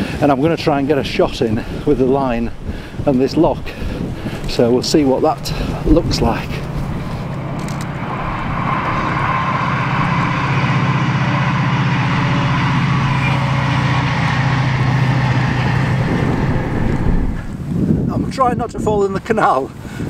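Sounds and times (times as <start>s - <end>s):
diesel train engine drone: 3.9s - 17.7s.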